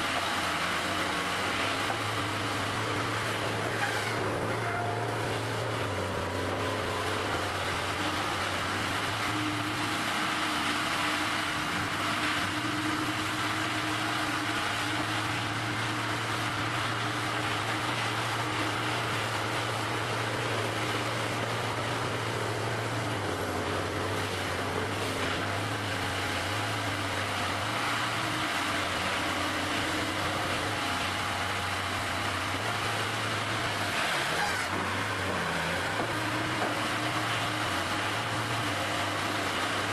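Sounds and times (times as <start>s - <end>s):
engine running with low hum: 0.0s - 39.9s.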